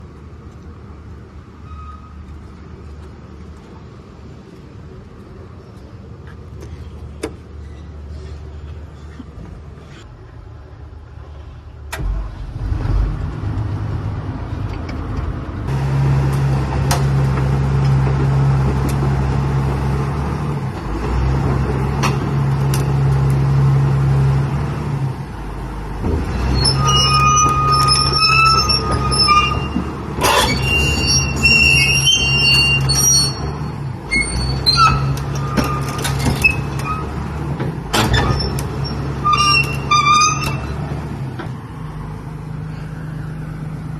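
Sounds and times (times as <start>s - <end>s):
excavator diesel engine running: 7.1s - 43.9s
high squealing whine: 26.5s - 37.1s, 38.1s - 40.8s.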